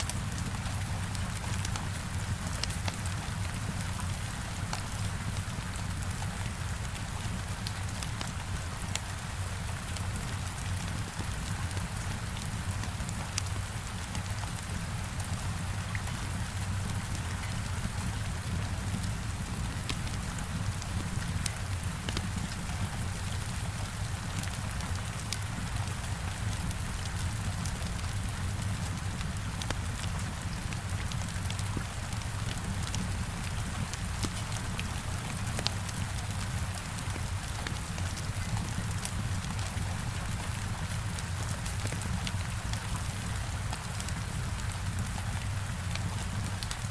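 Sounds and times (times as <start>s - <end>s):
heavy rain on a window: 0.0s - 46.9s
wood fire crackling: 10.5s - 46.9s.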